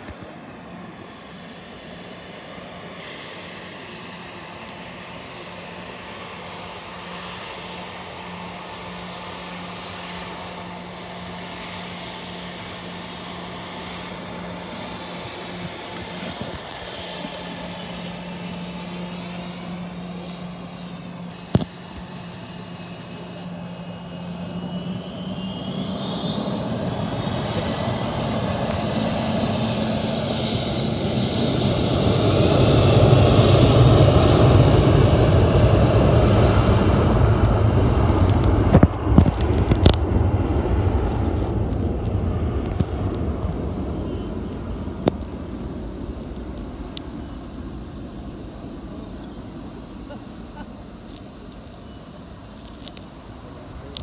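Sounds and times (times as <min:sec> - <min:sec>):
airliner engines whining and rumbling: 0:00.0 - 0:54.0.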